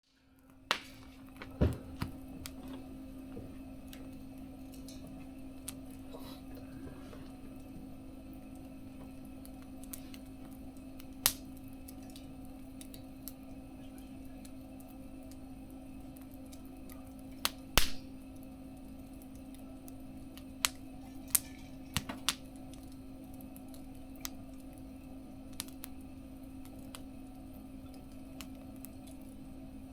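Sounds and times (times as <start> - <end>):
wood fire crackling: 0.0 - 29.9
steady low hum: 0.1 - 29.9
sharp pops of fire: 0.5 - 2.8, 9.5 - 12.0, 17.4 - 18.4, 19.3 - 23.0, 25.5 - 27.1.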